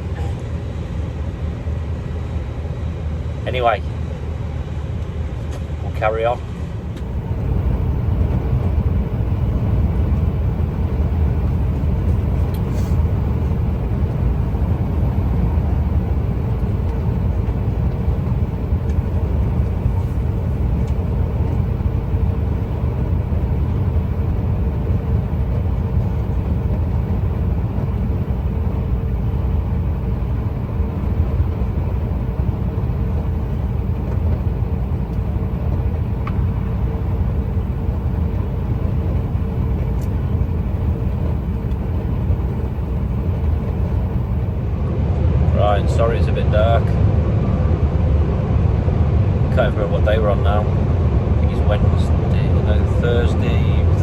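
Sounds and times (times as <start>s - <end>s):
truck engine and road rumble: 0.0s - 54.0s
faint steady hum: 6.7s - 47.0s.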